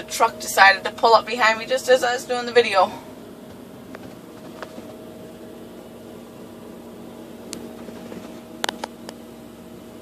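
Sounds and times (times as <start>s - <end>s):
mechanical hum with tones: 0.0s - 10.0s.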